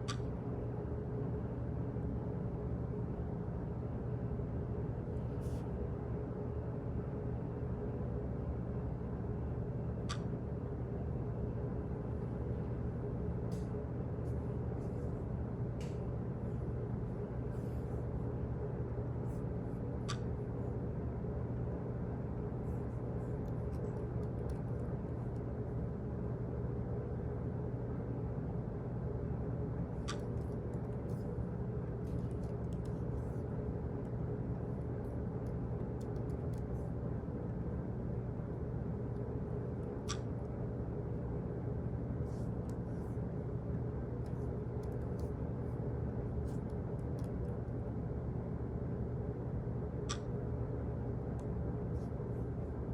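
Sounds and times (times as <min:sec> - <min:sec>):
office background hum: 0:00.0 - 0:52.9.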